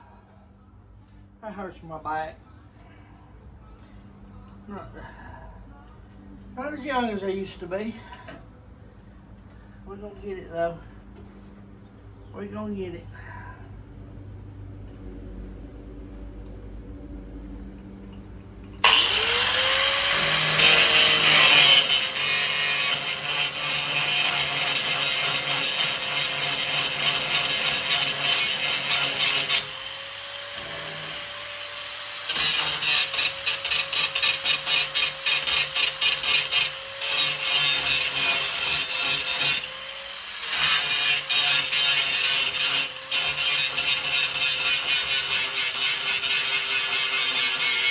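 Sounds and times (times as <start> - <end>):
angle grinder grinding steel: 18.8 - 47.9.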